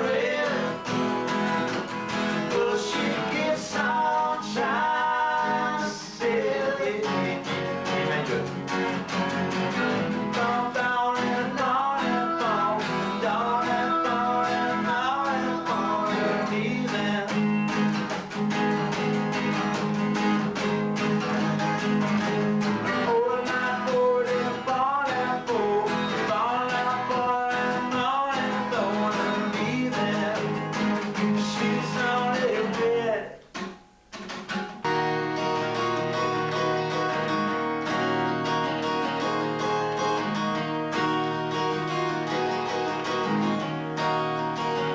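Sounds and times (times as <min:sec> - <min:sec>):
man singing: 0:00.0 - 0:01.1, 0:02.2 - 0:08.7, 0:09.7 - 0:17.9, 0:22.8 - 0:33.6
acoustic guitar strumming: 0:00.0 - 0:44.9.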